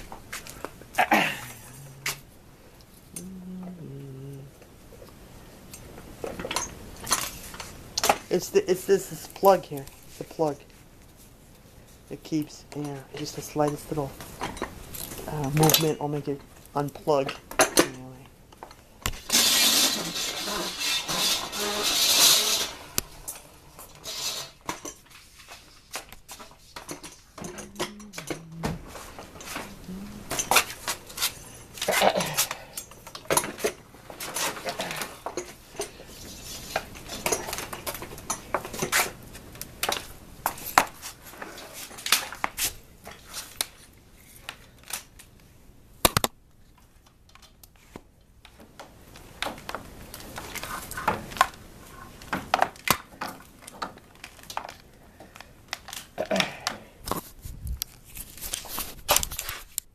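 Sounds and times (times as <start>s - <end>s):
household objects clinking and clattering: 5.7s - 8.4s, 12.8s - 39.2s.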